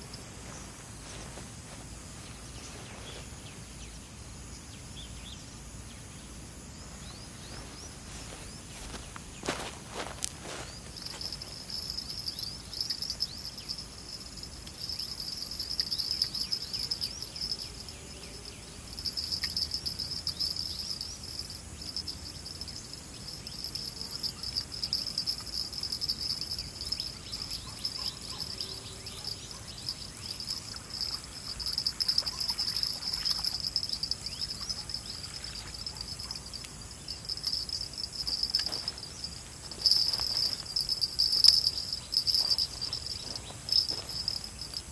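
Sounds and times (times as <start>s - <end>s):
crickets chirping trill: 0.0s - 44.9s
faint ticks: 19.0s - 22.8s.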